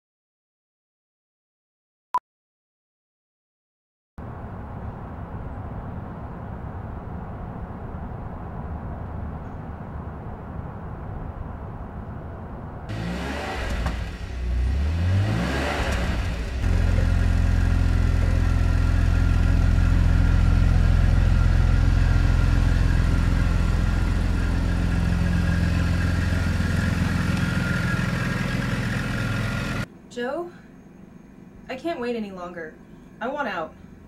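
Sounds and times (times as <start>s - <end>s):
car engine revving: 12.9s - 29.9s.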